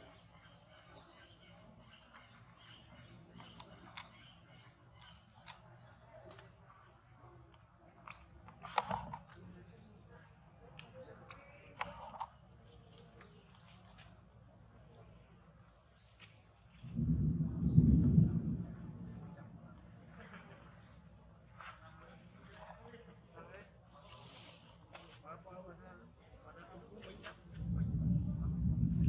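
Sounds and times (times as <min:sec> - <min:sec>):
rising bird chirps: 0:16.8 - 0:20.0
low rumble: 0:16.9 - 0:20.6, 0:27.5 - 0:29.0.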